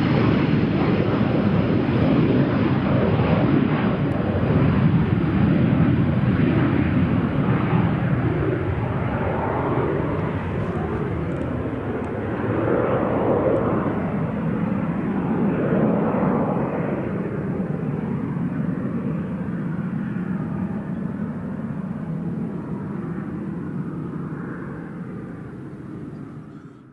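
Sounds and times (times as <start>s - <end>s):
jet engines roaring: 0.0s - 26.9s.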